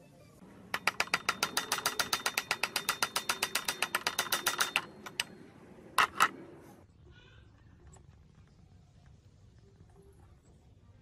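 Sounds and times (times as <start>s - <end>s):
rubber mallet tapping metal: 0.6s - 6.4s.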